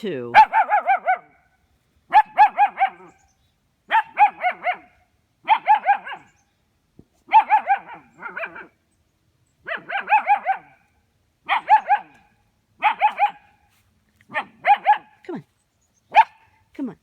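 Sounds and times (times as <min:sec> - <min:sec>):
puppy barking: 0:00.3 - 0:01.4, 0:02.1 - 0:03.2, 0:03.9 - 0:06.4, 0:07.3 - 0:08.8, 0:09.6 - 0:10.8, 0:11.4 - 0:13.6, 0:14.3 - 0:15.2, 0:16.1 - 0:16.6.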